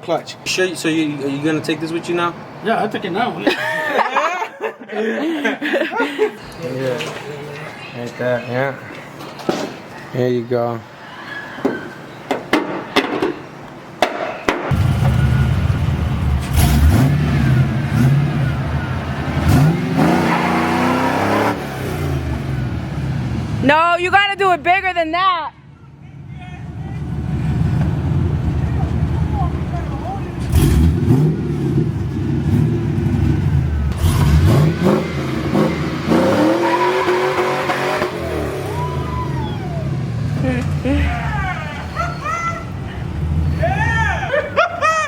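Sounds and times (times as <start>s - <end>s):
pickup engine revving: 14.7s - 23.7s, 27.0s - 42.1s.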